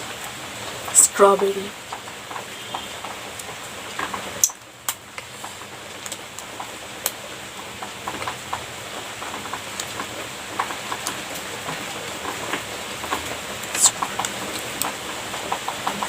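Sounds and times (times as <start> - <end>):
small mouth clicks: 13.7 - 14.1.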